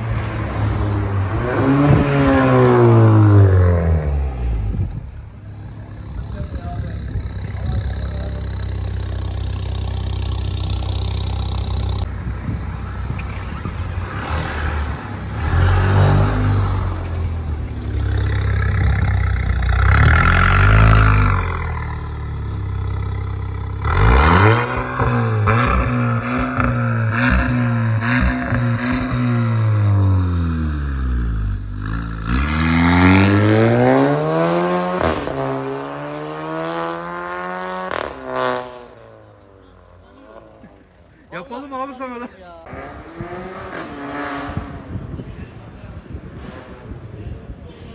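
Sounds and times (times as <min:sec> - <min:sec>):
car engine accelerating hard: 0:18.0 - 0:31.2.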